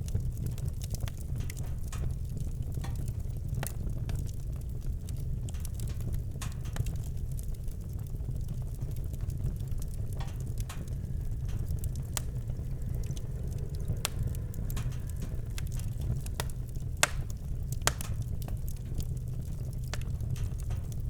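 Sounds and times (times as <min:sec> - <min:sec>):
campfire crackling and popping: 0:00.0 - 0:21.0
low rumble: 0:08.4 - 0:21.0.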